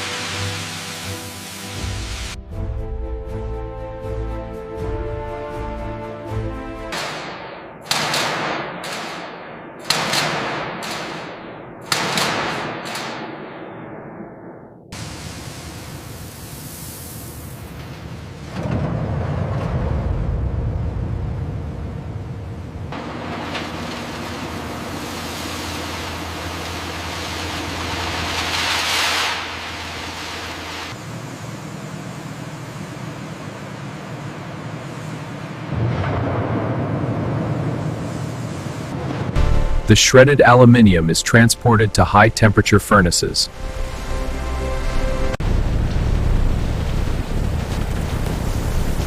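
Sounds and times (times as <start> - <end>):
grinding hiss: 0.0 - 2.4, 23.0 - 31.8
machinery low hum: 15.0 - 49.0
metal scrap crushing impacts: 23.0 - 31.0.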